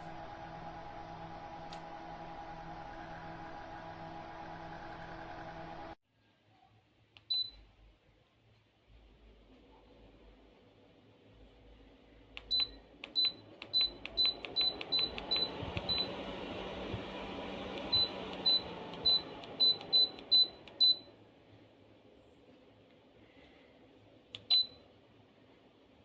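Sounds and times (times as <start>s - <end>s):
fan airflow: 0.0s - 6.0s, 13.0s - 20.8s.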